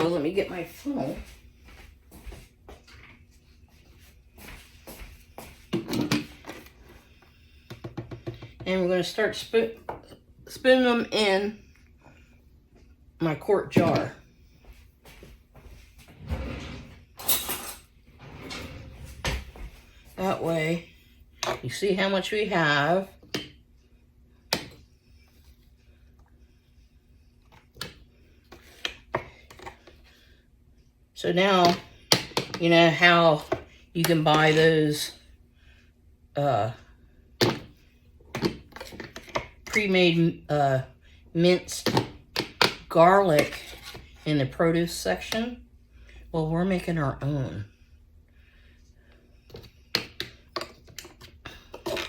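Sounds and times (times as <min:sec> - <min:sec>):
kitchen items knocking and clinking: 0:05.7 - 0:06.5
kitchen items clattering: 0:16.1 - 0:19.7, 0:49.5 - 0:52.0.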